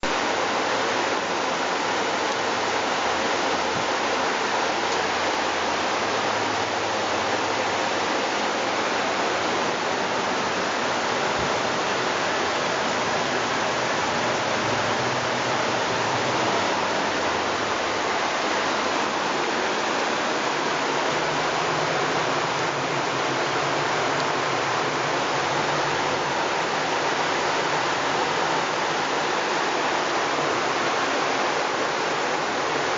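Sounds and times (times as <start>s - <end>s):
rainwater rushing down stairs: 0.0s - 32.9s.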